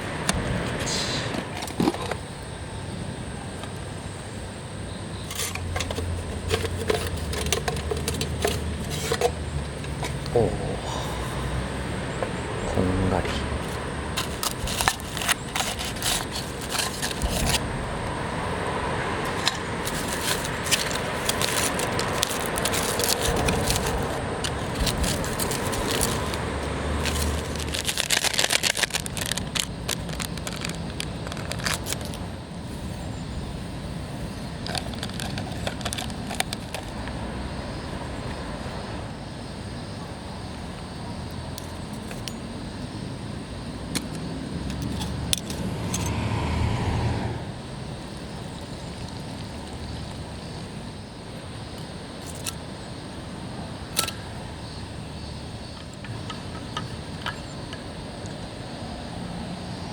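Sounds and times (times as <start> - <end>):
crackling: 5.1 - 32.9
metal cookware clinking and scraping: 5.3 - 10.2.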